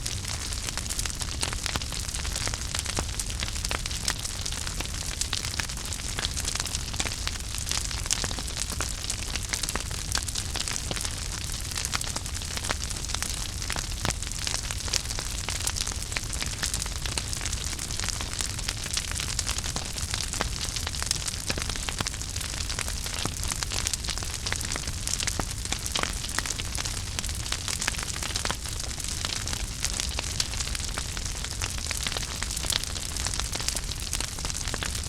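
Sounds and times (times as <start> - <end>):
low rumble of flames: 0.0 - 35.0
wood fire crackling and popping: 0.0 - 35.0.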